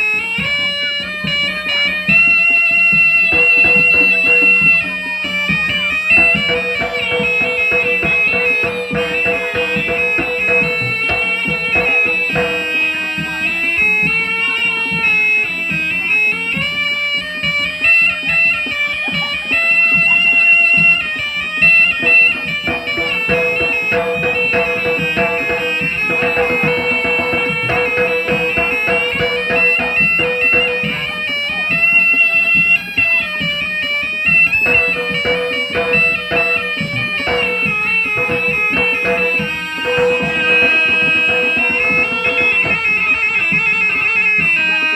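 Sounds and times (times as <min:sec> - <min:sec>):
quick steady drumming: 0:01.2 - 0:44.9
shrill reed trumpet melody: 0:03.2 - 0:13.8, 0:21.1 - 0:31.5, 0:33.8 - 0:44.9.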